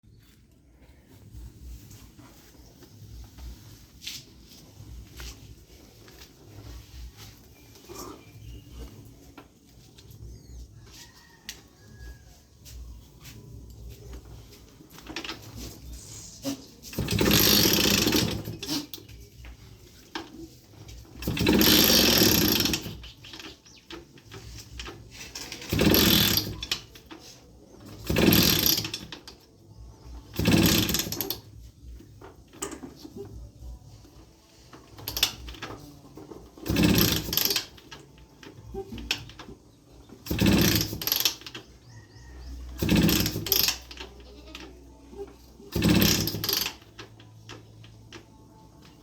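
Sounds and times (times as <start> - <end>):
motorbike engine idling and revving: 12.0 - 49.0.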